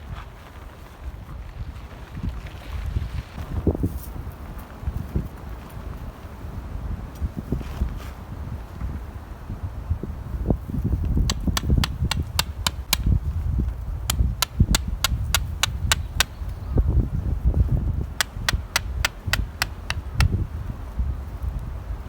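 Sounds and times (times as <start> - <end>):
wind noise on microphone: 0.0 - 22.0
hammer tapping tent pegs: 11.2 - 13.2, 14.0 - 16.6, 18.1 - 20.4.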